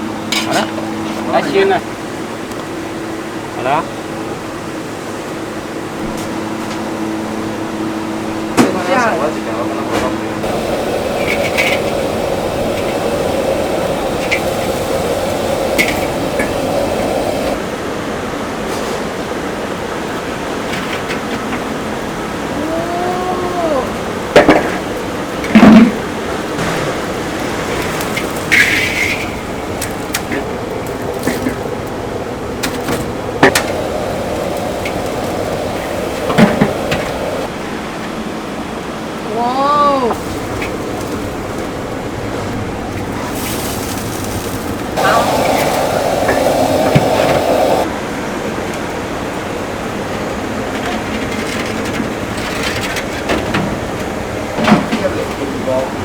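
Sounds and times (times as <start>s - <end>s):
steady background noise: 0.0s - 56.0s
machine-like hum: 10.4s - 17.6s, 33.4s - 37.5s, 45.0s - 47.9s
busy food shop din: 39.4s - 47.9s.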